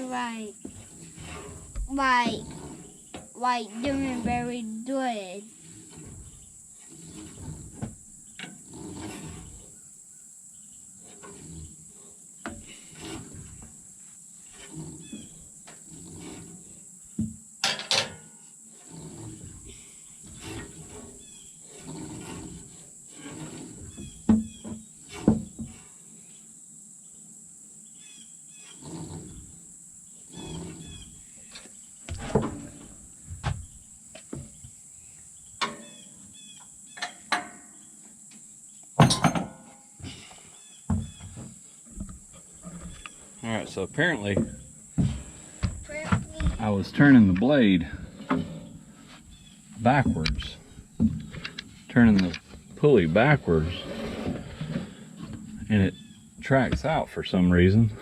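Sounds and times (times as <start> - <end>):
high insect drone: 0.0 - 58.0
metal knocks and clunks: 17.1 - 18.3, 23.8 - 25.8, 31.5 - 34.6, 35.6 - 35.9, 37.0 - 37.7, 39.0 - 39.8, 40.9 - 43.1, 44.2 - 48.8, 49.8 - 53.0.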